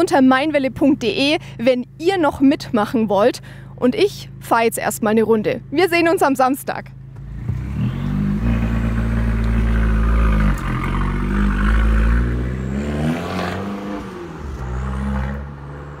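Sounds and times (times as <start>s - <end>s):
car engine accelerating: 6.9s - 16.0s.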